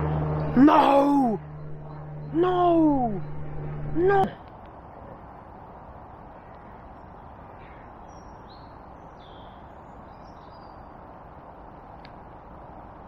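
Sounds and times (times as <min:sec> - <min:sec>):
steady rushing noise: 0:00.0 - 0:07.6
small birds chirping: 0:06.3 - 0:11.2
faint click: 0:12.0 - 0:12.2.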